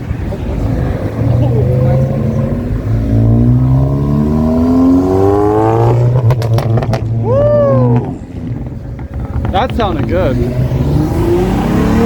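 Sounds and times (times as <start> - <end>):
car engine accelerating: 0.0 - 12.0
idling car engine drone: 0.0 - 12.0
exhaust crackles and pops: 5.8 - 12.0.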